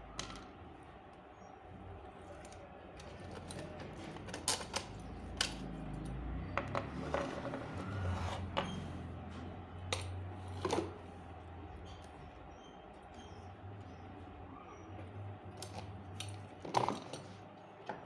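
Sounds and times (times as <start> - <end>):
metal tools clicking and knocking: 2.4 - 7.8.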